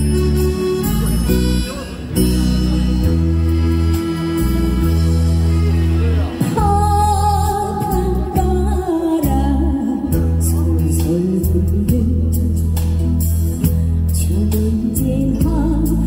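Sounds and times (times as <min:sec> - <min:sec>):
instrumental music with heavy bass: 0:00.0 - 0:16.0
woman singing: 0:06.4 - 0:13.0, 0:14.1 - 0:16.0.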